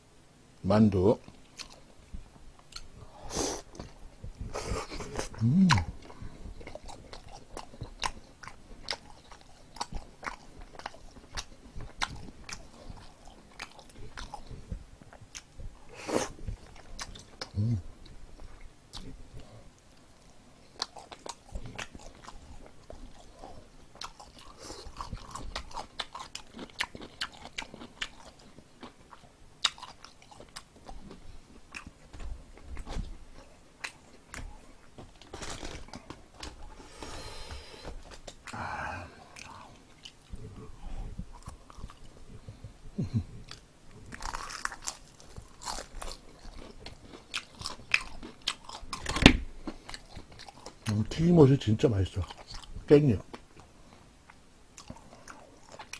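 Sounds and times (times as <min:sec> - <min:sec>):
crunching fried chicken: 0:20.7 - 0:31.9, 0:43.5 - 0:53.5.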